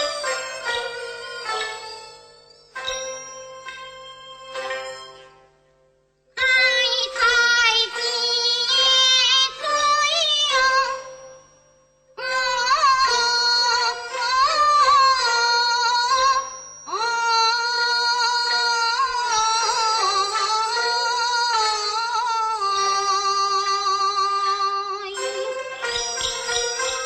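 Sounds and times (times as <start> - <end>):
instrumental accompaniment: 0.0 - 27.0
woman singing opera: 12.2 - 25.1.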